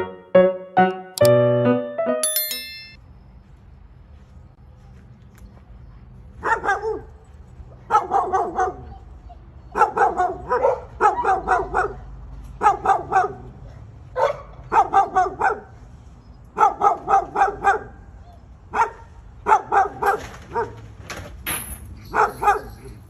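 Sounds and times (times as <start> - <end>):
dog barking: 6.4 - 7.2, 7.8 - 9.0, 9.7 - 15.8, 16.6 - 18.1, 18.7 - 20.8, 22.1 - 23.0.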